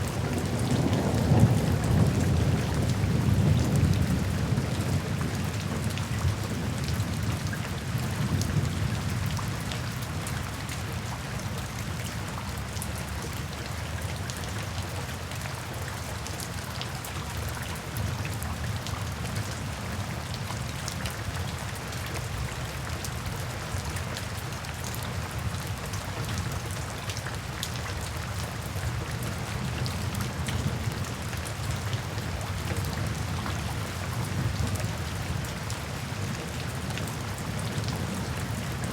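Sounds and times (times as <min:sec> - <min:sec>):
low rumble of thunder: 0:00.0 - 0:10.3
steady rain falling: 0:00.0 - 0:38.9.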